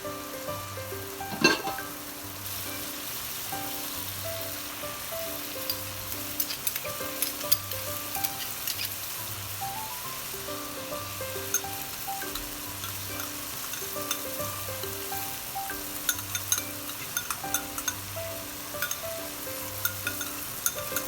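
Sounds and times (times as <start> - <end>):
food sizzling in a pan: 0.0 - 21.0
utensil scraping a pan: 1.3 - 2.0, 5.7 - 9.2, 12.3 - 14.4, 16.0 - 18.1.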